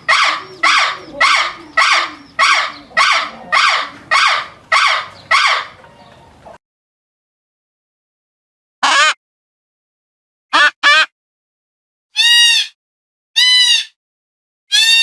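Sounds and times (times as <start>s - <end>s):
animal calling harshly: 0.0s - 6.1s, 8.8s - 9.2s, 12.2s - 12.8s, 13.4s - 14.0s, 14.7s - 15.0s.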